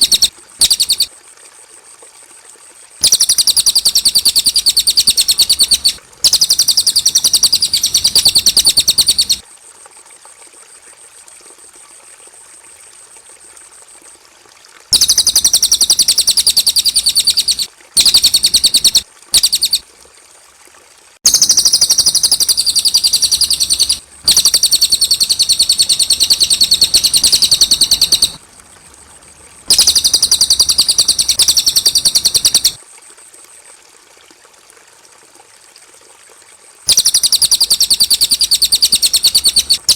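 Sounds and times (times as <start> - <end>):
birdsong with fast high notes: 0.0 - 1.1, 3.0 - 9.4, 15.0 - 19.8, 21.3 - 28.4, 29.7 - 32.8, 36.9 - 39.9.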